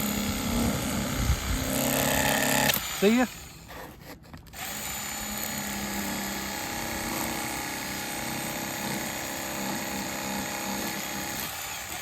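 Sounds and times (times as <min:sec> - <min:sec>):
electric knife motor humming: 0:04.6 - 0:12.0.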